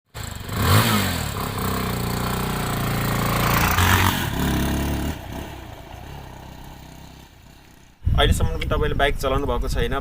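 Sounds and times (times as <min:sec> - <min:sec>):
motorcycle engine revving: 0:00.1 - 0:08.0.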